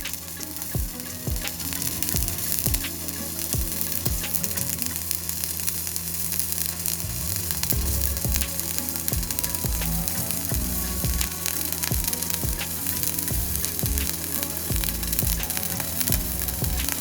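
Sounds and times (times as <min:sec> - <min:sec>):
welding arc crackling and sizzling: 0:00.0 - 0:17.0
low hum: 0:06.4 - 0:14.1.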